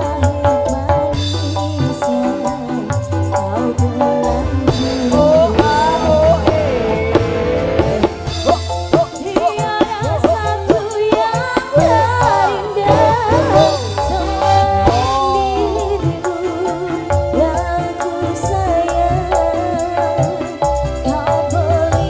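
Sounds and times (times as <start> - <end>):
band music with bending lead melody: 0.0 - 22.0
drums: 0.0 - 22.0
steady bass line: 3.0 - 10.8, 11.8 - 17.9.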